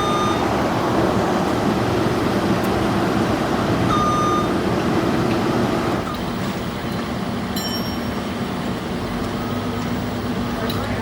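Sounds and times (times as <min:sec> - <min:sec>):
heavy machinery engine running: 0:00.0 - 0:06.2
short beep: 0:03.9 - 0:04.5.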